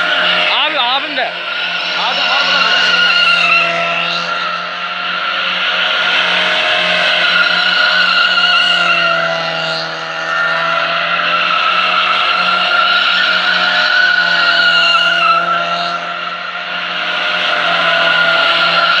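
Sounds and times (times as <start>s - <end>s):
car engine: 0.0s - 19.0s
car tyres squealing: 0.0s - 19.0s.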